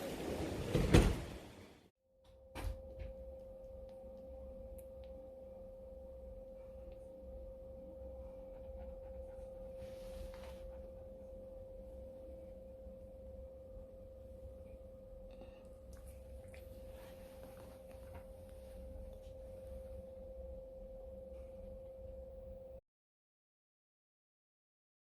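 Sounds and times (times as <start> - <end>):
faint low hum: 2.2 - 22.8
soft rustle: 9.4 - 10.9, 16.0 - 20.1.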